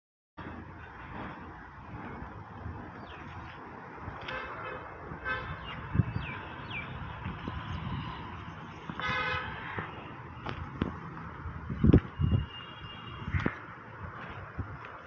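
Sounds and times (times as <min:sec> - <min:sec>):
outdoor background noise: 0:00.4 - 0:15.0
vehicle horn toots: 0:09.0 - 0:09.5, 0:12.2 - 0:13.4.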